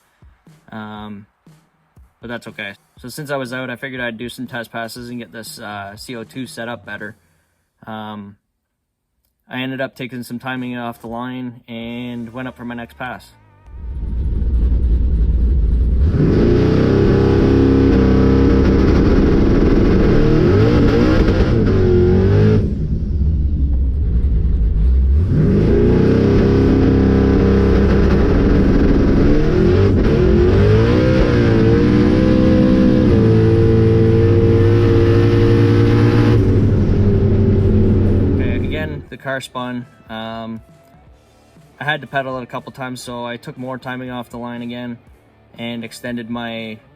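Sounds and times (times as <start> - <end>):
drag car engine at full throttle: 13.6 - 39.0.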